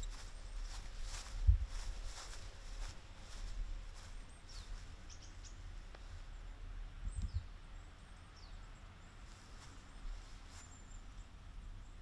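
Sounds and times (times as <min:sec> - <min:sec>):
steady low rumble: 0:00.0 - 0:12.0
bird chirping: 0:03.3 - 0:05.7.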